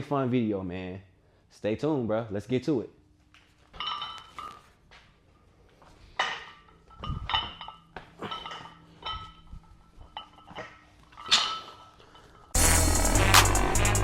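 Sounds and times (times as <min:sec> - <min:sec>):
barbell and iron plates clanking: 0:03.7 - 0:04.7, 0:06.1 - 0:12.6.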